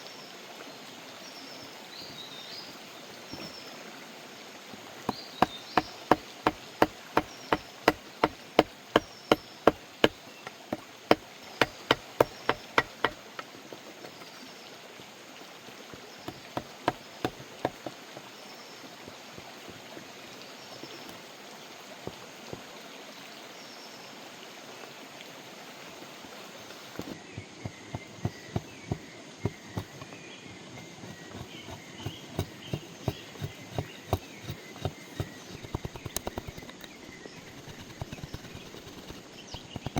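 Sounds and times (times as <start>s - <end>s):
rapid sharp knocks: 5.1s - 13.4s, 27.7s - 30.1s, 30.8s - 36.7s, 37.4s - 39.9s.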